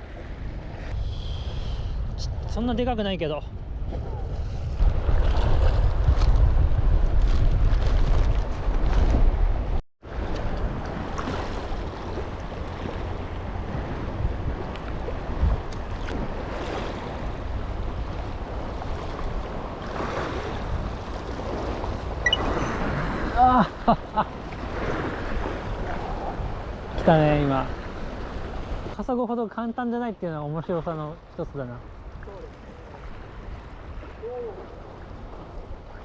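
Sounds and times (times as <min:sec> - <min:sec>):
wind buffeting microphone: 0:00.0 - 0:29.0, 0:31.8 - 0:36.0
sea waves washing: 0:10.0 - 0:29.0.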